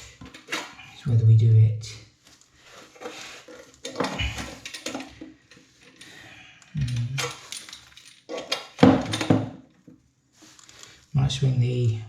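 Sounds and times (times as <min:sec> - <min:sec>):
metal fittings clinking: 0:03.0 - 0:09.4.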